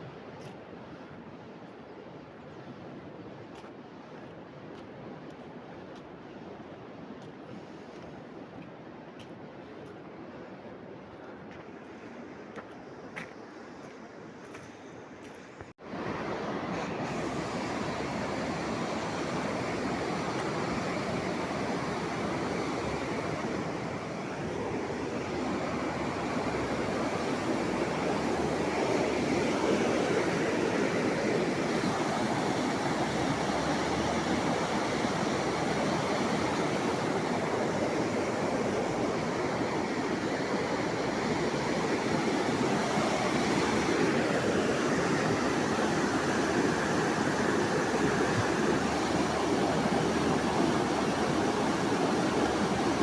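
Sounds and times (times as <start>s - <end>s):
water rushing: 15.8s - 53.0s.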